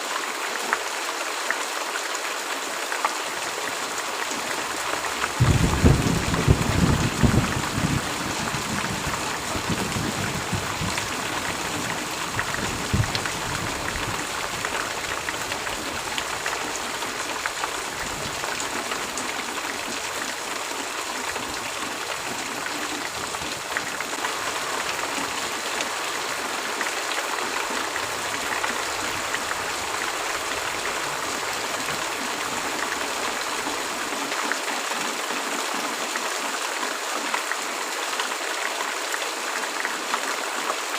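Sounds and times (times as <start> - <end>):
heavy rain: 0.0 - 40.9
low rumble of thunder: 5.3 - 17.2.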